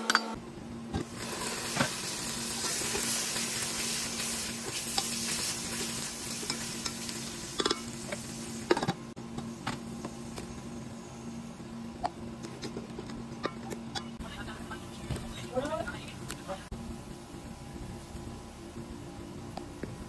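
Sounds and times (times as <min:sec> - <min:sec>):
faint steady hum: 0:00.1 - 0:20.0
onions sizzling in hot oil: 0:01.0 - 0:11.4.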